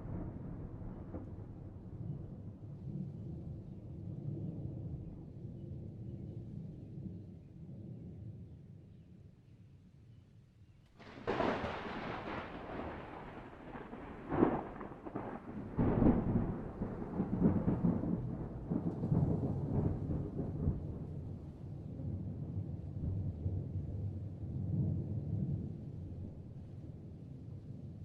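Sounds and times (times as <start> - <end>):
thunder crack: 0.0 - 2.4, 11.0 - 21.3
rolling thunder rumble: 0.0 - 5.3, 11.0 - 27.2.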